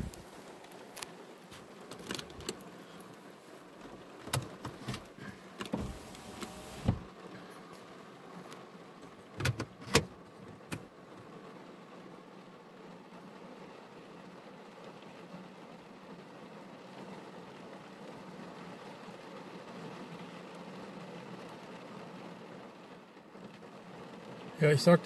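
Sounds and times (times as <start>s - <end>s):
steady hiss: 0.0s - 1.8s, 4.7s - 7.1s
raindrops on car roof: 0.0s - 25.0s.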